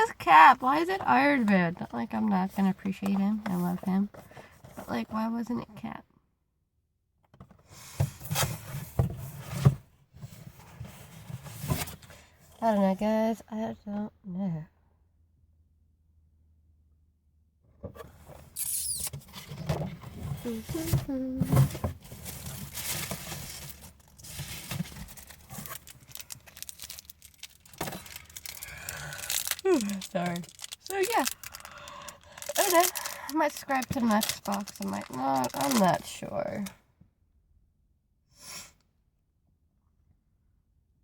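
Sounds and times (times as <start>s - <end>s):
rubbing and rustling: 18.0s - 28.6s
packaging crinkling: 22.0s - 36.2s.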